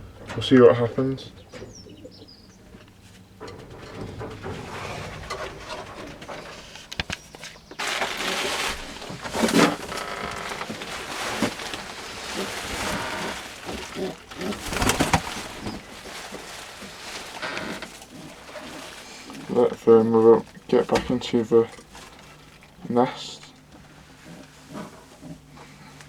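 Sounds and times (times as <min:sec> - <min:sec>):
pigeons cooing: 0:00.0 - 0:20.6
loud rustling: 0:00.0 - 0:22.8.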